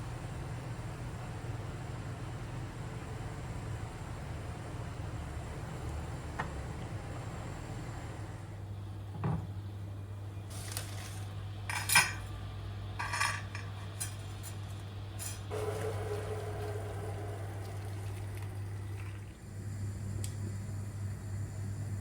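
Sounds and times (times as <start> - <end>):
dishes and cutlery clinking: 11.7 - 12.3, 13.0 - 15.5.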